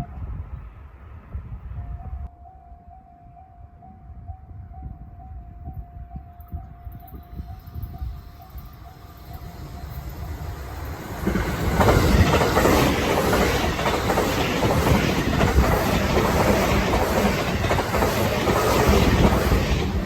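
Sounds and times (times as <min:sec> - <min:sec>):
train passing: 0:00.0 - 0:20.0
wheels clacking over rail joints: 0:10.2 - 0:20.0.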